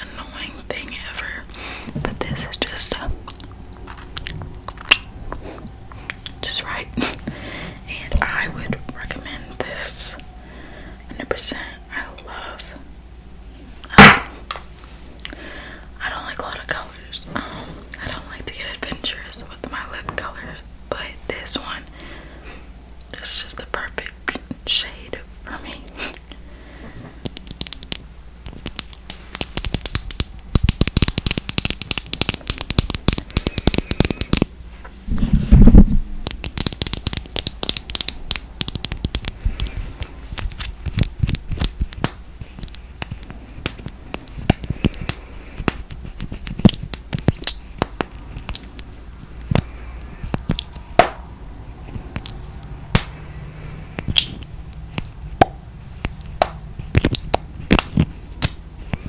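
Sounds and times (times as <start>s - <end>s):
fingernails tapping on packaging: 28.5s - 34.5s, 36.2s - 39.8s.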